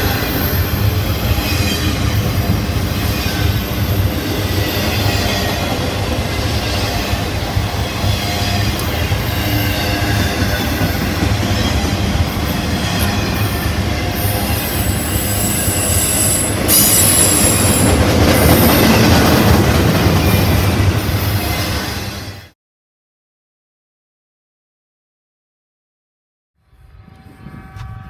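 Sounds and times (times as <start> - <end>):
freight train wheels rumbling: 0.0 - 22.5
high-pitched wheel squeal: 8.0 - 17.9.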